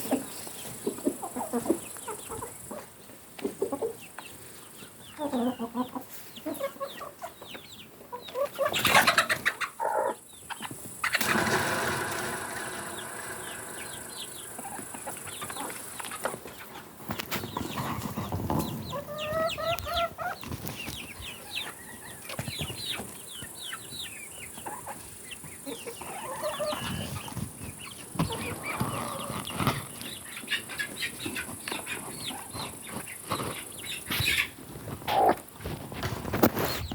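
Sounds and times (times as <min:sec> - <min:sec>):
chickens clucking and calling: 0:00.0 - 0:35.6
loud burst of noise: 0:11.1 - 0:15.7.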